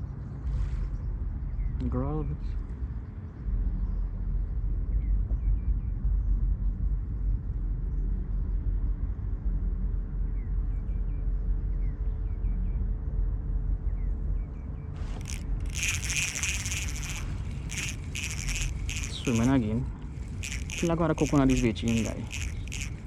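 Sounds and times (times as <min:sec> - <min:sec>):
faint bird chirps: 0:15.2 - 0:23.0
insect buzzing in pulses: 0:15.2 - 0:23.0.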